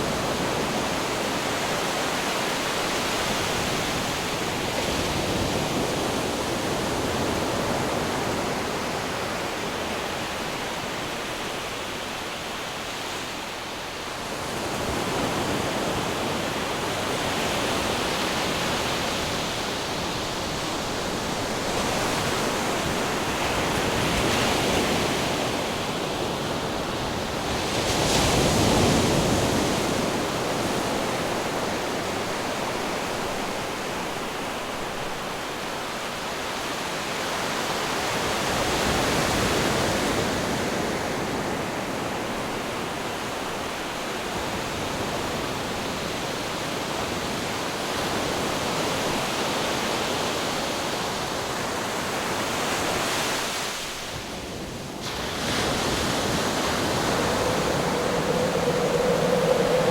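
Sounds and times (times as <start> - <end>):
wind: 0.0 - 59.9
ocean surf: 51.6 - 59.9.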